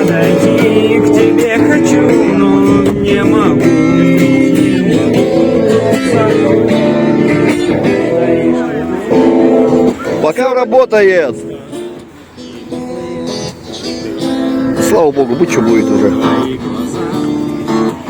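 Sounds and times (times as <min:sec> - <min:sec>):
man singing: 0:00.0 - 0:10.1, 0:13.8 - 0:18.0
guitar strumming: 0:00.0 - 0:18.0.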